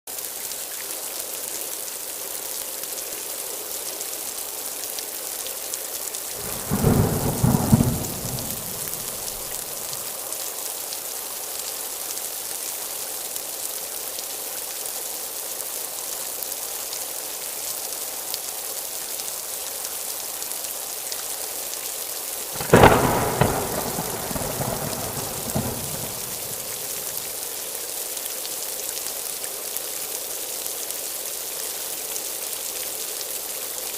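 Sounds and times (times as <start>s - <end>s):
heavy rain hissing: 6.0s - 12.0s, 21.4s - 33.9s
thunder claps: 6.4s - 10.0s, 22.6s - 27.3s.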